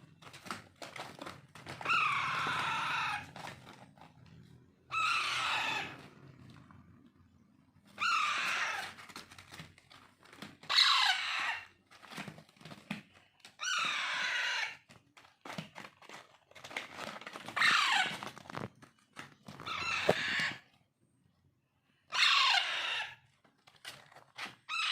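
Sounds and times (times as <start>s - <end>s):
parakeet chicks begging calls: 1.8s - 3.3s, 4.8s - 6.1s, 7.9s - 8.9s, 10.6s - 11.7s, 13.6s - 14.8s, 17.5s - 18.2s, 22.1s - 23.2s.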